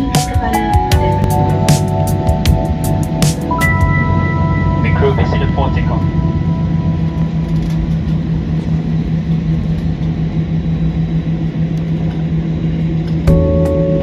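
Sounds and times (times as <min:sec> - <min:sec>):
airliner rumble: 0:00.0 - 0:14.0
constant low hum: 0:00.0 - 0:14.0.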